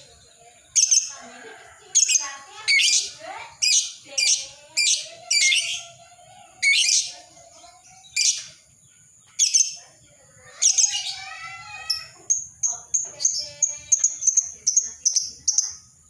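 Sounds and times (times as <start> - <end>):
lovebird shrill chirps: 0.7 - 1.2, 2.0 - 6.0, 6.6 - 7.2, 9.4 - 9.8, 10.6 - 15.8.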